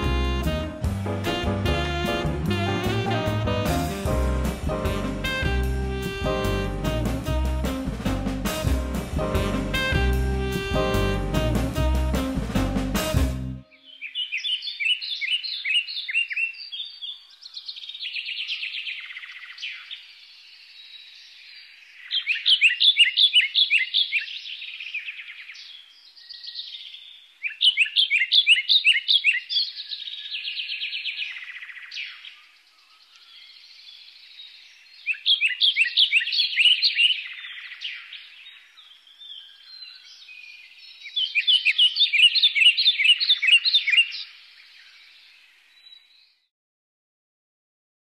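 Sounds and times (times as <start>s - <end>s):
songbird chirping: 13.6s - 46.5s.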